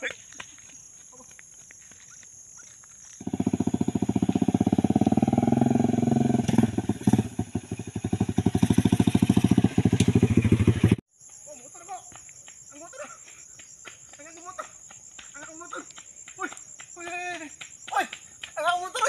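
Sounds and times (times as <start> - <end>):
small motorcycle engine: 3.2 - 11.0.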